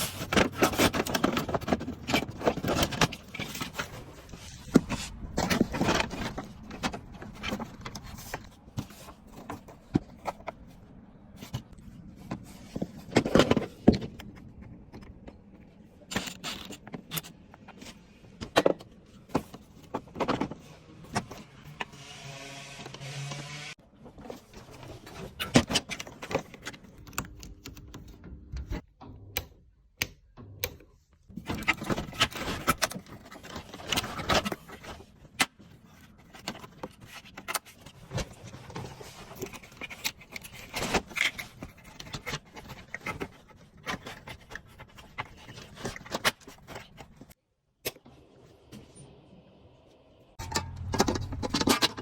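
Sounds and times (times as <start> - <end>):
metal parts clinking and clattering: 50.4 - 52.0
metal scraping: 50.4 - 52.0.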